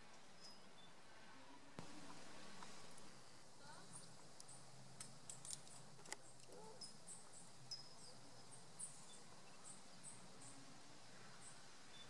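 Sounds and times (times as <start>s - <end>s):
small birds chirping: 3.6s - 12.0s.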